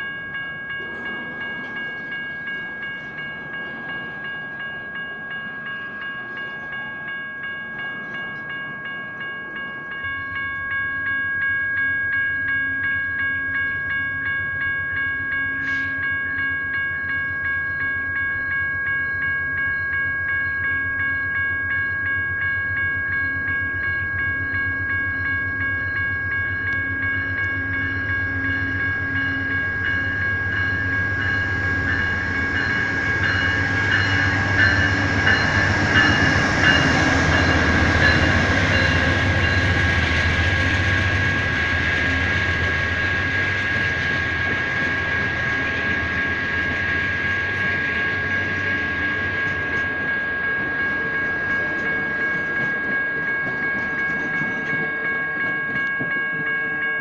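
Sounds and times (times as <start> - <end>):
crossing bells ringing: 0.0 - 57.0
diesel locomotive rumble: 23.7 - 54.3.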